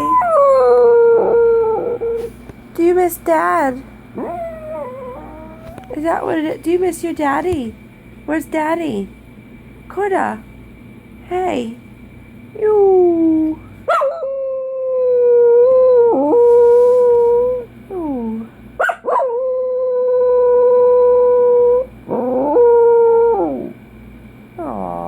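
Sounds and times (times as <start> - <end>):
dog howling: 0.0 - 2.2, 4.2 - 6.0, 12.8 - 23.8, 24.6 - 25.0
dog whining: 0.0 - 2.4, 4.2 - 6.1, 24.6 - 25.0.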